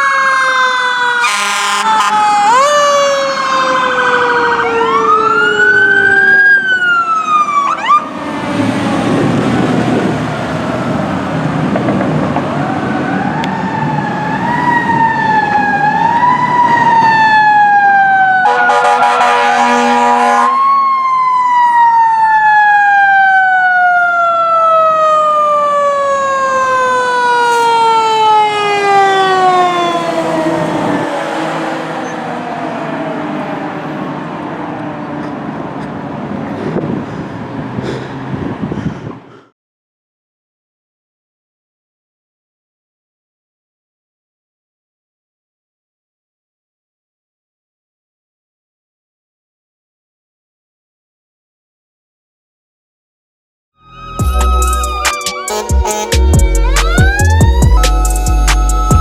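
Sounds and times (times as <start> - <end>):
mechanical siren wailing: 0.0 - 9.8, 12.5 - 33.9, 53.8 - 59.0
air horn blasts: 1.2 - 2.6, 18.4 - 20.6, 27.4 - 28.5, 54.2 - 58.4
diesel engine rumble passing: 1.8 - 17.4, 27.2 - 38.6.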